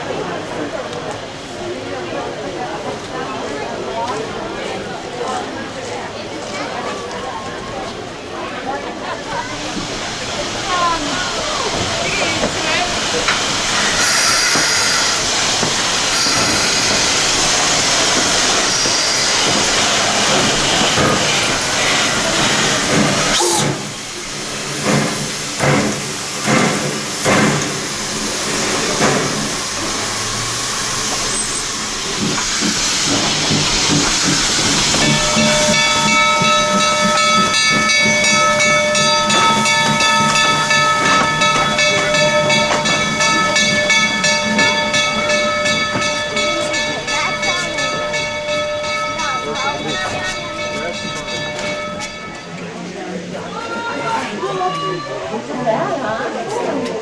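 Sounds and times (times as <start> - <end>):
steam puffs: 9.2 - 52.5
steam venting hiss: 9.3 - 52.3
held ringing tone: 34.9 - 52.6.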